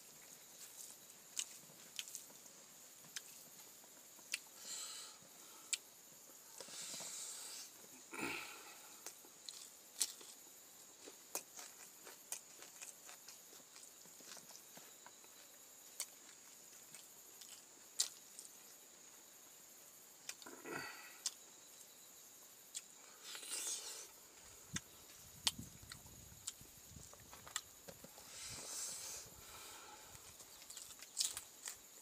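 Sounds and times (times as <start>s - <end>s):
man chewing with mouth clicks: 0.2s - 2.3s, 3.0s - 4.5s, 11.0s - 18.7s, 20.2s - 21.4s, 22.7s - 28.7s, 29.4s - 32.0s.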